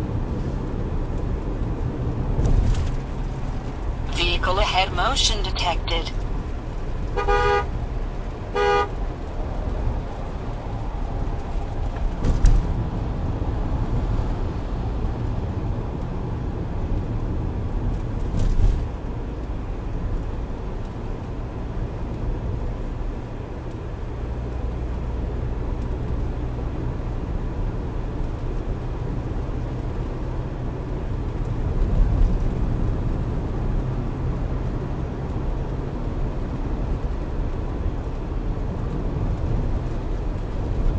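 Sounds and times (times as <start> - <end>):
engine and tyres rumbling: 0.0 - 4.1, 6.1 - 40.9
vehicle horn blasts: 7.2 - 7.7, 8.6 - 9.0.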